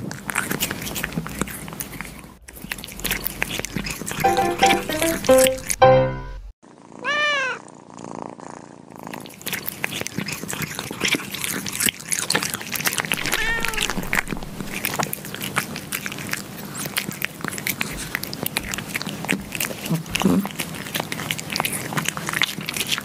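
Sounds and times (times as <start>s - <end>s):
kittens lapping yogurt: 0.0s - 4.2s, 9.0s - 23.0s
kitten meowing: 13.2s - 14.1s.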